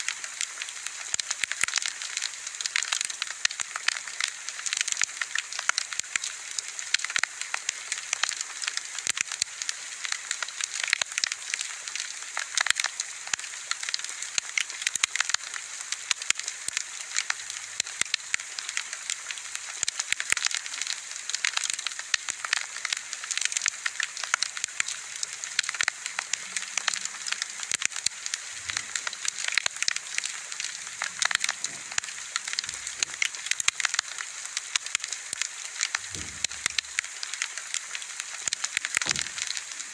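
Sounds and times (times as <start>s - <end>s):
bonfire crackling: 0.1s - 39.9s.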